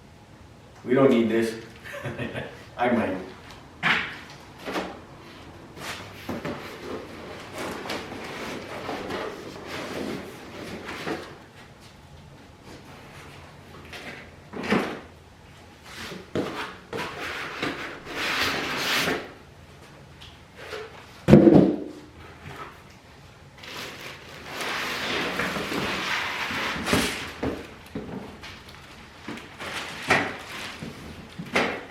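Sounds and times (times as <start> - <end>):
cardboard scraping and rustling: 5.8 - 11.4, 23.6 - 31.9.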